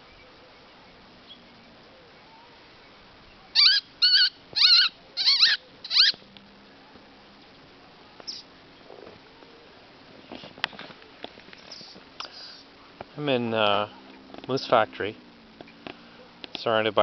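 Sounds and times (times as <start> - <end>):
songbird nasal calls: 3.4 - 6.2.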